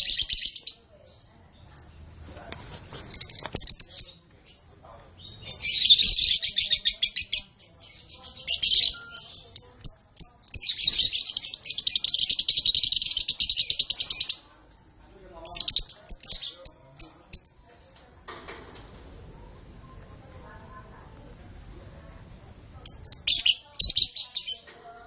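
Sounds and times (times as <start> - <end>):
canary singing trills: 0.0 - 2.1, 3.0 - 18.3, 22.8 - 24.8.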